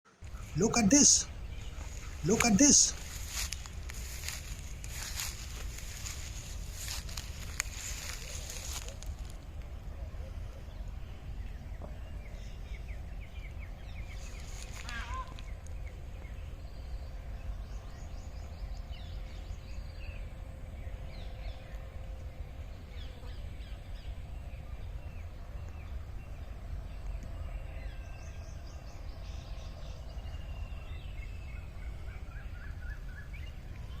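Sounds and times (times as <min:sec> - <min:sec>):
birds chirping and calling: 0:00.2 - 0:09.1, 0:11.8 - 0:19.2.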